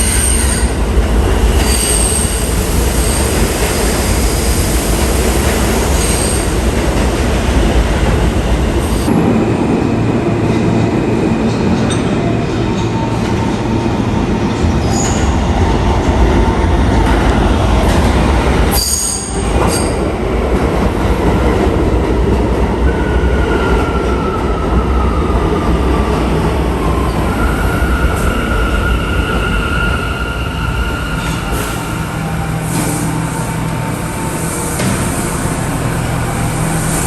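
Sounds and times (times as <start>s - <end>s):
subway train rumbling: 0.0s - 37.0s
train wheels squealing: 1.5s - 4.8s, 5.8s - 6.6s, 18.7s - 20.1s.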